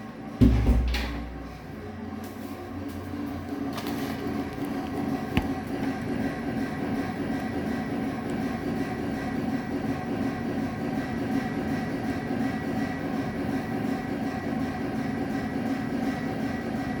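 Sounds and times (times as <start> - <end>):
steady droning hum: 0.0 - 17.0
sharp bang through walls: 0.4 - 1.4.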